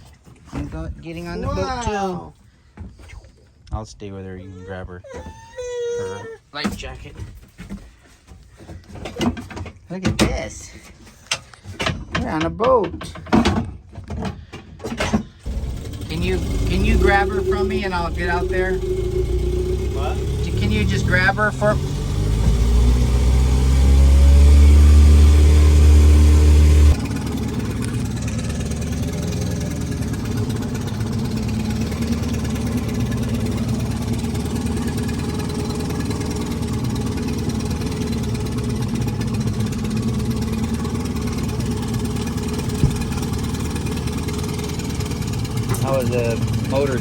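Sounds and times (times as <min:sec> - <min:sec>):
boat motor running: 0:15.5 - 0:47.0
deep hum rising in pitch: 0:15.5 - 0:47.0.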